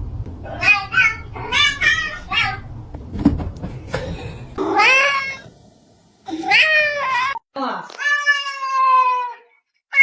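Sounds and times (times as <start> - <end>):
cat meowing: 8.0 - 10.0.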